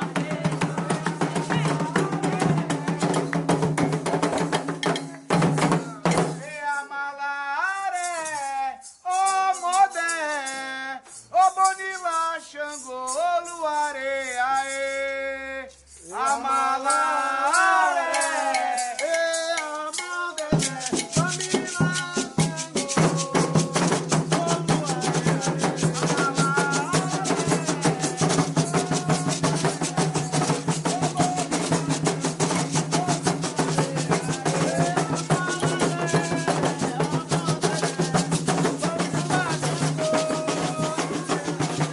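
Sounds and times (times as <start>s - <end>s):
group of voices singing: 0.0s - 4.0s, 15.2s - 41.9s
hand drums beating fast: 0.0s - 6.5s, 18.2s - 41.9s
shaken rattle: 0.0s - 6.8s, 7.9s - 41.9s
person singing solo: 15.5s - 32.1s, 32.8s - 41.9s.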